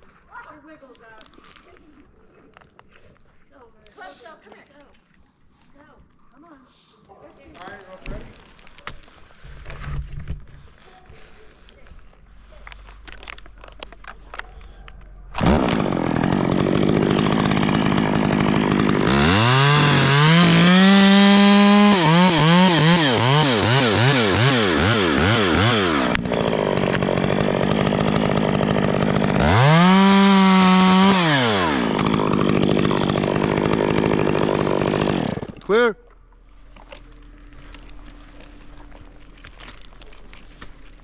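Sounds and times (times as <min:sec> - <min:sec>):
chainsaw idling and revving: 0:15.3 - 0:35.8.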